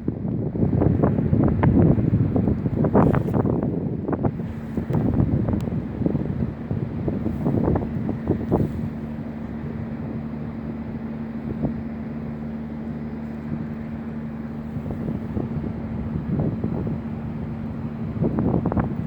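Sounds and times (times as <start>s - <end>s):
steady low hum: 0.0s - 19.0s
wind buffeting microphone: 0.0s - 19.0s.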